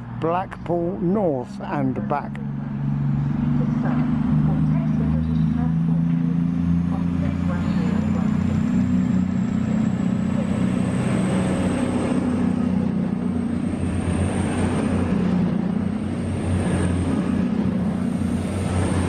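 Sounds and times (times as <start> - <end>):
diesel train engine drone: 0.0 - 19.0.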